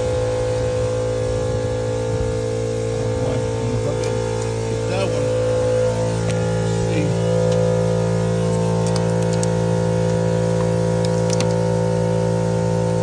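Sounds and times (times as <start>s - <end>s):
steady multi-tone hum: 0.0s - 13.0s.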